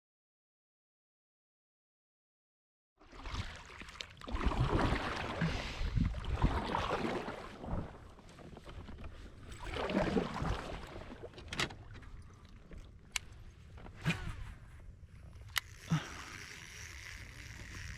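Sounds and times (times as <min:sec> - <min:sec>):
wind noise: 0:05.5 - 0:06.7.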